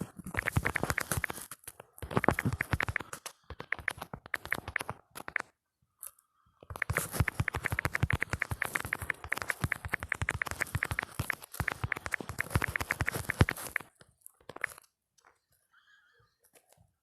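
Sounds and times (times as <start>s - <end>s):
phone keyboard clicks: 0.2s - 5.5s, 6.6s - 14.9s.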